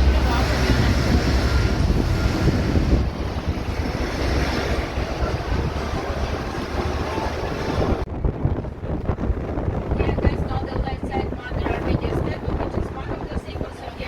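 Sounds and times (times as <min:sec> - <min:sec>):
water rushing: 0:00.0 - 0:08.1
boat engine rumble: 0:00.0 - 0:14.0
wind buffeting microphone: 0:00.0 - 0:14.0.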